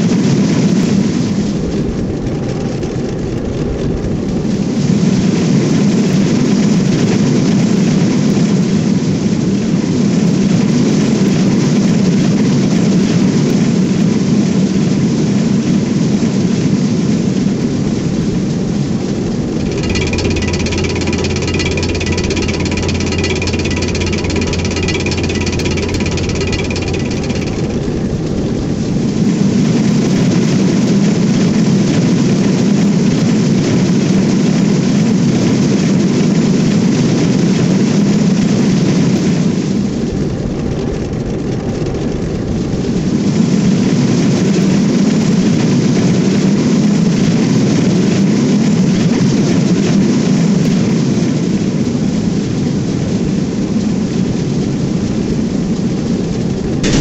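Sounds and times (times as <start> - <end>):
train wheels rumbling on rails: 19.6 - 28.6.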